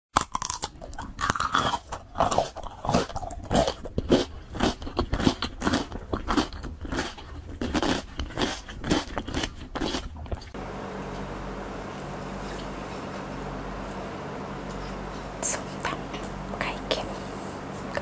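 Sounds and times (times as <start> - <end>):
crunchy biting and chewing: 0.2 - 10.6.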